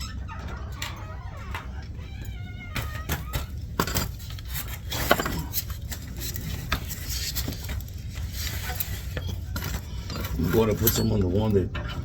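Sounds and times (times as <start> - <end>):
metallic clinks of steel parts: 9.6 - 11.7.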